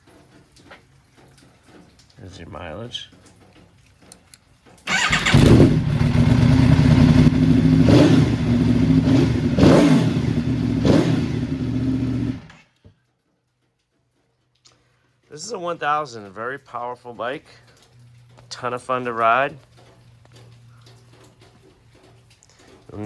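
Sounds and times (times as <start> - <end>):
motorcycle engine revving: 4.9 - 12.7.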